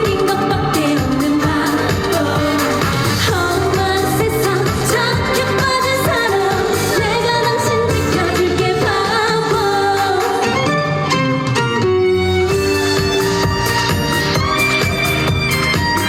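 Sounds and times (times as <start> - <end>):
woman singing: 0.0 - 10.6
backing track with beat and bass: 0.0 - 16.0.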